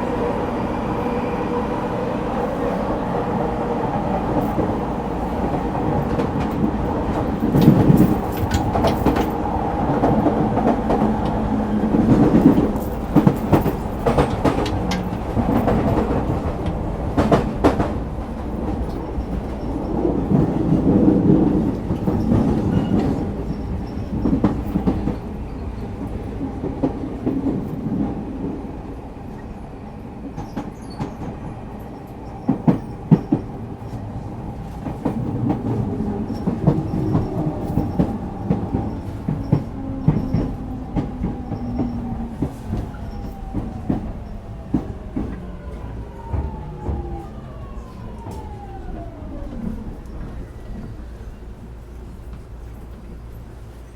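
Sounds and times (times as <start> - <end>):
wheels clacking over rail joints: 4.4 - 25.2.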